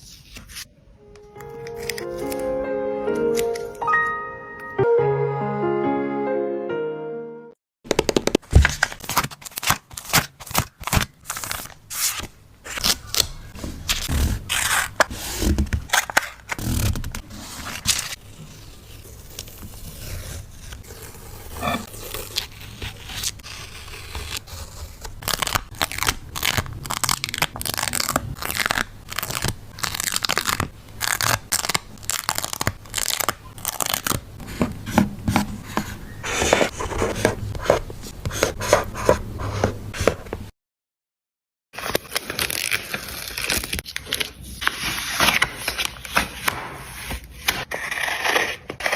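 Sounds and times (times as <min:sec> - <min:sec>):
paper tearing and crinkling: 0:08.2 - 0:34.2, 0:41.8 - 0:48.9.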